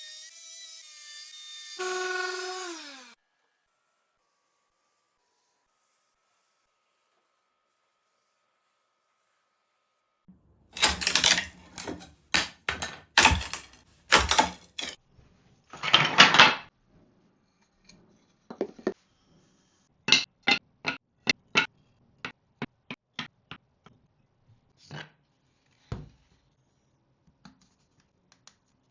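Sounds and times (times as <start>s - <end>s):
hard objects knocking and clattering: 10.8s - 15.0s.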